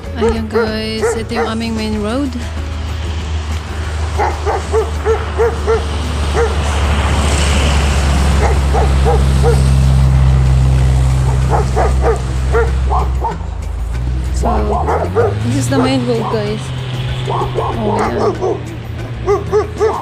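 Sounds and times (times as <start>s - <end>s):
steady low rumble: 0.0s - 20.0s
dog barking: 0.2s - 1.7s, 4.2s - 6.7s, 8.4s - 9.8s, 11.3s - 13.4s, 14.7s - 16.7s, 17.3s - 20.0s.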